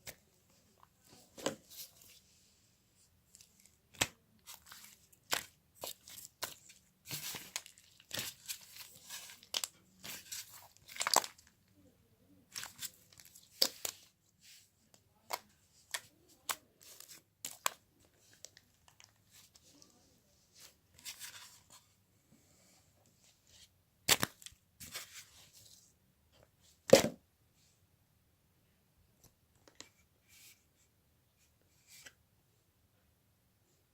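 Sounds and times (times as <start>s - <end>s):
rustling and tearing: 3.3s - 11.5s.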